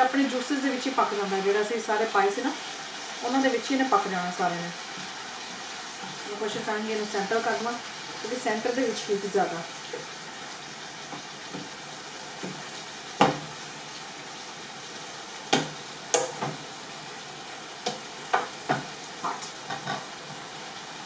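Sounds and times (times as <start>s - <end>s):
meat sizzling in a hot pan: 0.0s - 21.0s
utensil knocking against pan: 13.2s - 13.4s.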